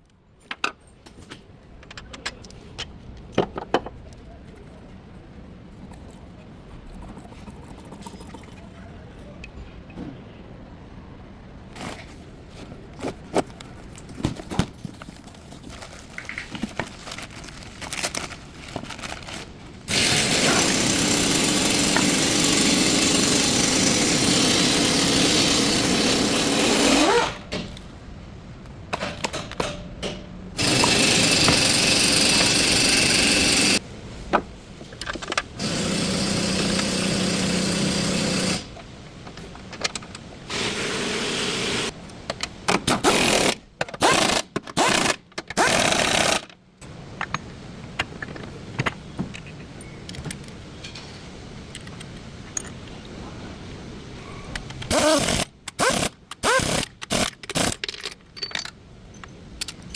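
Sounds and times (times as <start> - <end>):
power tool running: 19.9 - 27.4, 30.6 - 33.8, 35.6 - 38.7, 54.9 - 57.7
tools clinking on metal: 57.2 - 59.9.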